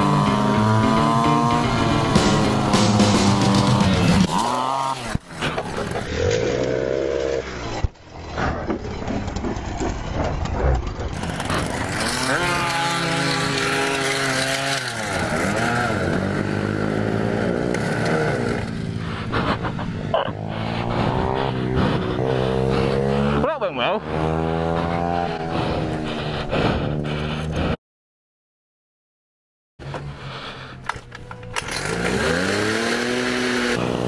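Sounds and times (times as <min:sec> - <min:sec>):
motorcycle engines revving and passing: 0:00.0 - 0:07.9, 0:11.1 - 0:27.8, 0:31.0 - 0:34.0.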